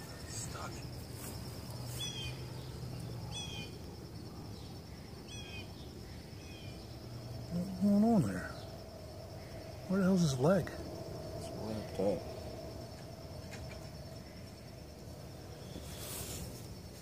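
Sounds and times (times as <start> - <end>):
high insect drone: 0.0 - 17.0
small bird chirping: 0.4 - 3.8, 4.6 - 8.8
man speaking: 7.5 - 8.6, 9.9 - 10.8, 11.4 - 12.3.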